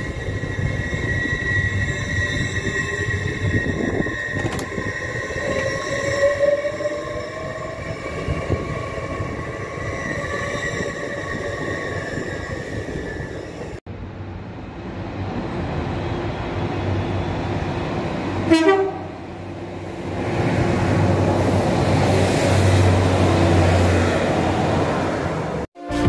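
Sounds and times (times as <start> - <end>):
train passing with steady whine: 0.0 - 25.6
train rumbling along platform: 0.0 - 26.0
train horn blast: 18.5 - 19.2.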